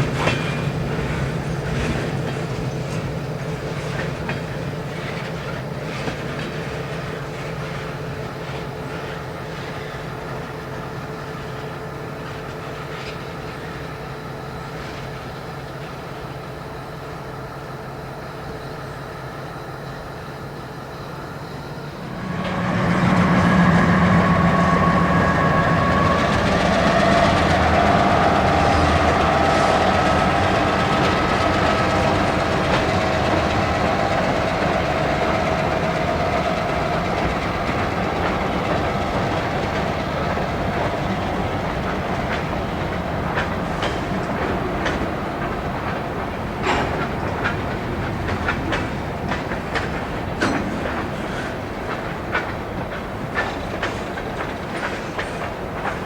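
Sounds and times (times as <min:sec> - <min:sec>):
wheels clicking over rail joints: 0:00.0 - 0:10.5, 0:25.9 - 0:56.0
diesel train passing: 0:00.0 - 0:56.0.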